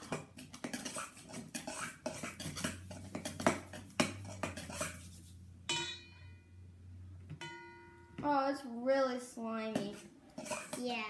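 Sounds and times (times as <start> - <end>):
utensil scraping and clinking in bowl: 0.0 - 5.9, 9.8 - 11.0.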